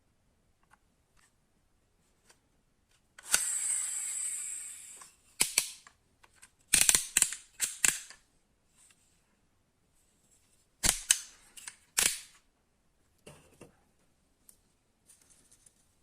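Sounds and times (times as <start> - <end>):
high whirr: 3.2 - 5.1
small parts clicking and clacking: 3.2 - 8.2.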